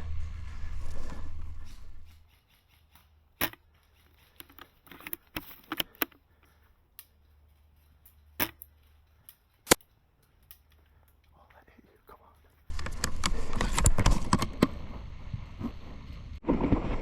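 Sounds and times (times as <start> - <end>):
faint low hum: 0.0 - 2.2.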